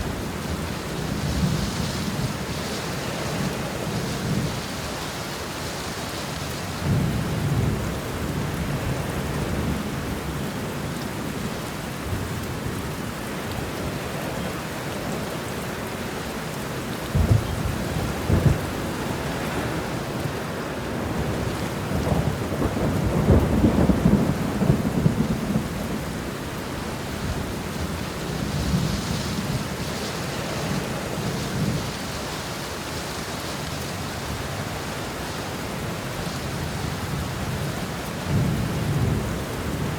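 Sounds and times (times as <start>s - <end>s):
heavy rain: 0.0s - 39.9s
rolling thunder: 17.0s - 32.1s.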